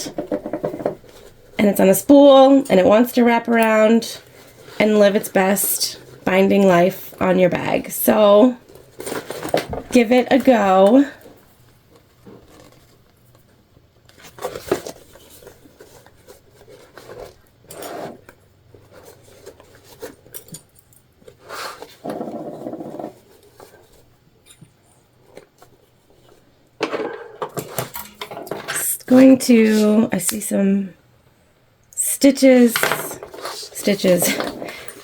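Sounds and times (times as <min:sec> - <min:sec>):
vinyl rustling and rubbing: 0:03.8 - 0:20.3, 0:21.2 - 0:30.0, 0:33.2 - 0:35.0.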